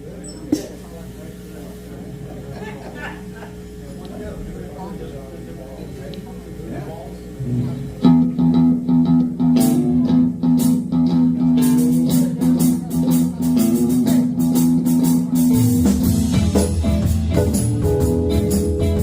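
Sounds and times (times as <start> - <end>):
bass guitar: 7.4 - 19.0
electric guitar: 7.4 - 19.0
drum beat: 11.6 - 19.0.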